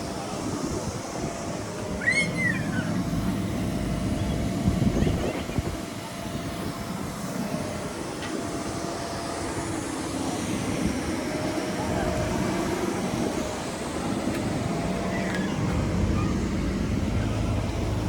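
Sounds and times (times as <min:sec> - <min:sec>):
vehicle engine rumbling: 0:10.2 - 0:18.0.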